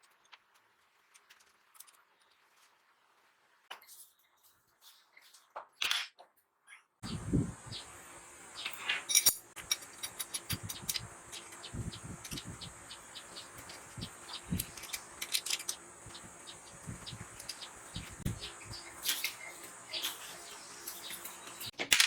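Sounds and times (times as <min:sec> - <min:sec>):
small hard parts clicking: 0:08.6 - 0:22.0.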